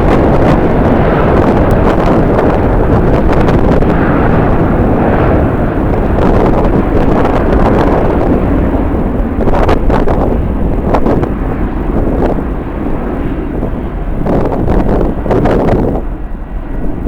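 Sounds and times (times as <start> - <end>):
gusting wind buffeting microphone: 0.0 - 17.0
jet engines roaring: 0.0 - 17.0.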